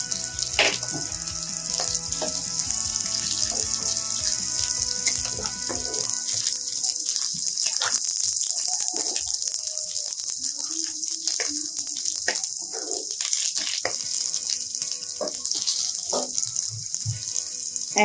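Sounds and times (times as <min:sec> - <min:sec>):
food sizzling in hot oil: 0:00.0 - 0:18.0
wooden spatula scraping a pan: 0:01.7 - 0:08.1.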